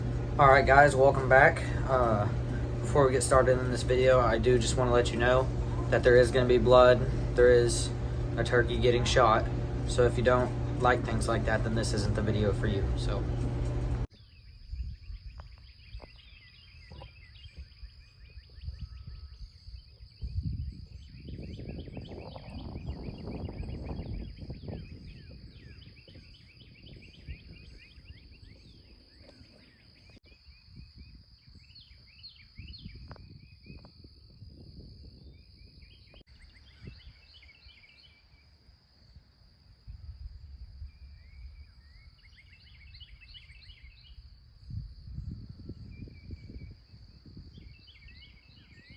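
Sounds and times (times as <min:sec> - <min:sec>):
low rumbling noise: 0:00.0 - 0:14.1
songbirds chirping: 0:00.0 - 0:33.9, 0:35.1 - 0:39.5, 0:40.7 - 0:48.9
high insect drone: 0:00.0 - 0:48.9.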